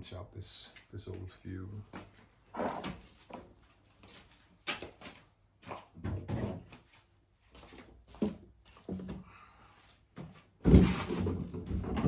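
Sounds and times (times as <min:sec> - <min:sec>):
knocks and scrapes handling lawn mower: 0:10.6 - 0:12.0.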